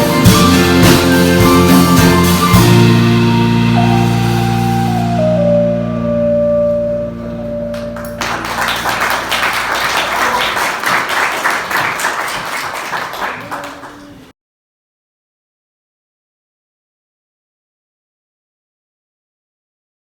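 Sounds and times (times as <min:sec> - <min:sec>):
hymn final chord: 0:03.8 - 0:10.8
audience applause: 0:07.7 - 0:14.3.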